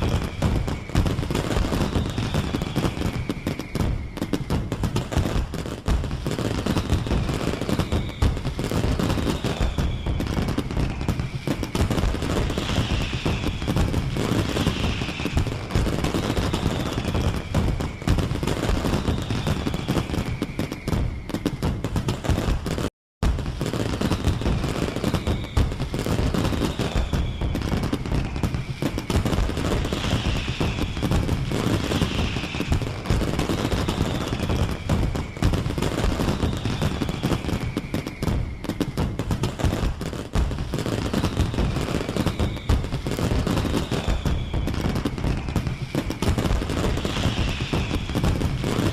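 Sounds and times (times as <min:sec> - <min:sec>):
faint falling whistles: 0:00.0 - 0:48.9.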